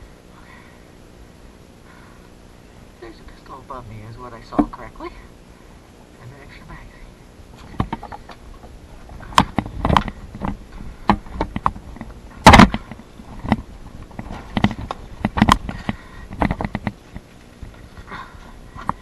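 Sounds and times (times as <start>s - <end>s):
sharp clicks and knocks: 7.6s - 17.3s.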